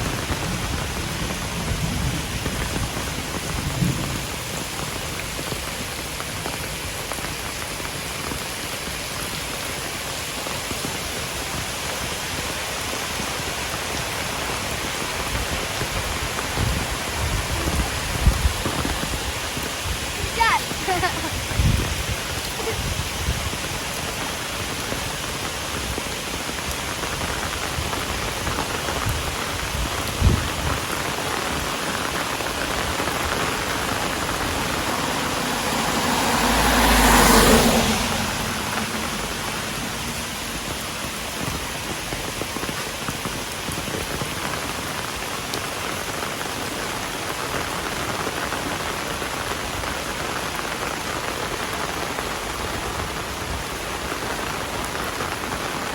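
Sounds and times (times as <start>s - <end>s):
heavy rain falling: 0.0s - 55.9s
loud rushing sound: 33.8s - 40.8s.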